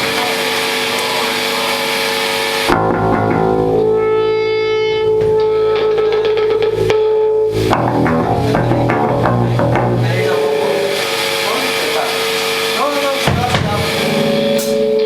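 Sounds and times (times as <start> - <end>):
sustained electric guitar note: 2.6 - 11.5
punk rock band playing: 2.7 - 11.5, 13.2 - 15.0.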